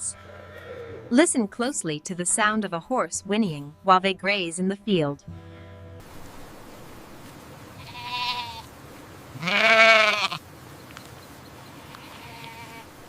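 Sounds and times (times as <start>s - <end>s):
animal bleating: 0.0s - 1.2s, 7.8s - 8.7s, 9.3s - 10.4s, 11.7s - 12.9s.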